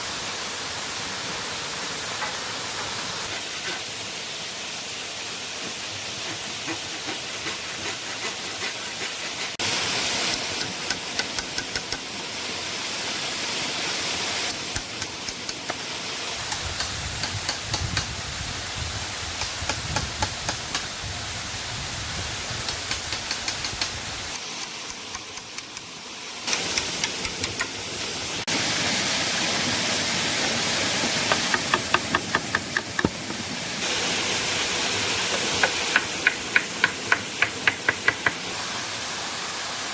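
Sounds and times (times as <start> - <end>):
waterfall rushing: 26.4 - 39.9.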